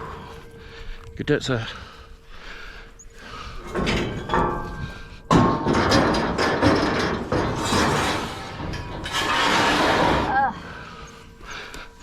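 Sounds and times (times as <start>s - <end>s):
metallic ringing: 0.0s - 12.0s
scrap metal clanking and scraping: 3.2s - 11.7s
loud metal clatter: 3.6s - 10.4s.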